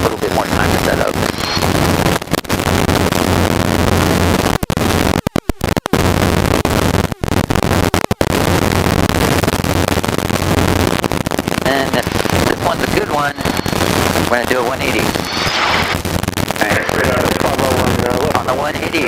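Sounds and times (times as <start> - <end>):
helicopter engine and rotor drone: 1.0 - 1.8, 13.0 - 16.0.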